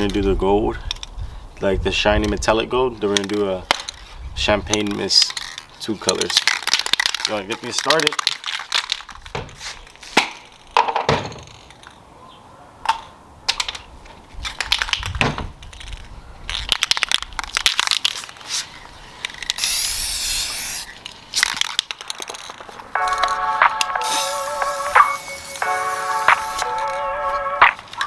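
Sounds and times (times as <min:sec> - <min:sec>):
spray cans clicking: 0:04.8 - 0:09.1, 0:19.2 - 0:28.0
spray paint hissing: 0:19.6 - 0:21.0, 0:23.8 - 0:27.4.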